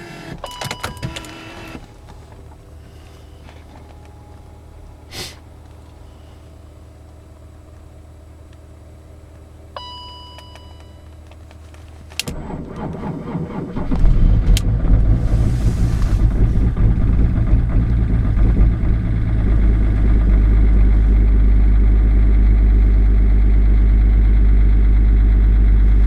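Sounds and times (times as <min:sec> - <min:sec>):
starter motor cranking: 0:12.2 - 0:18.8
diesel engine idling roughly: 0:12.4 - 0:26.0.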